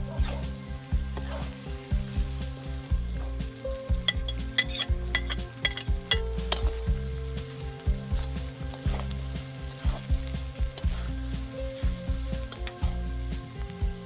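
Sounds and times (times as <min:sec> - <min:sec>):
food sizzling in a wok: 0:00.0 - 0:14.0
metal spatula scraping pan: 0:04.0 - 0:06.9, 0:08.0 - 0:13.0.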